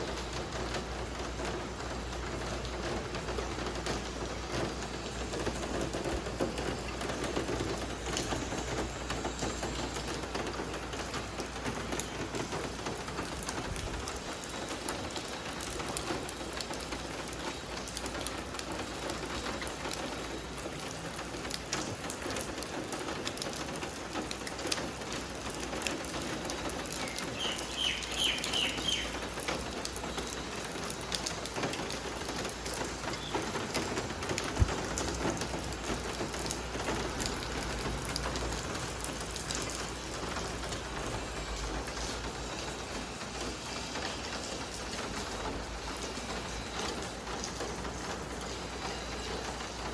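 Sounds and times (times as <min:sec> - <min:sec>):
steady rain with drop ticks: 0:00.0 - 0:49.9
bird high chirps: 0:27.0 - 0:29.2.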